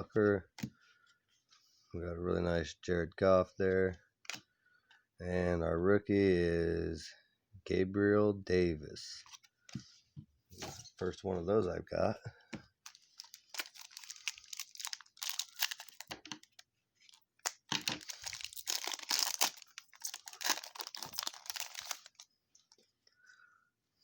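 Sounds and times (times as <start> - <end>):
wrapper tearing and crinkling: 12.9 - 22.2.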